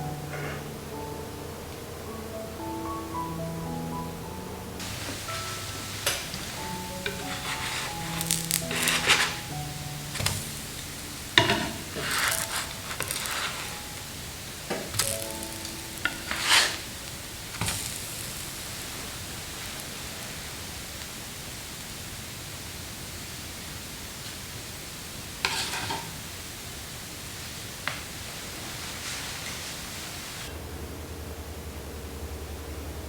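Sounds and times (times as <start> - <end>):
steady hiss: 0.0 - 33.0
kitchenware clattering: 4.8 - 14.0.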